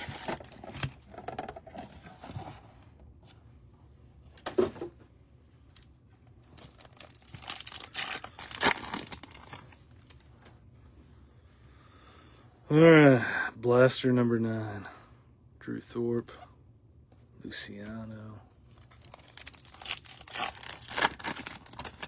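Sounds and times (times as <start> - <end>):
cardboard box tearing open: 0.0 - 1.0, 6.7 - 9.6, 19.0 - 22.0
wrapping crinkling: 0.0 - 1.1, 6.4 - 10.5, 18.7 - 22.0.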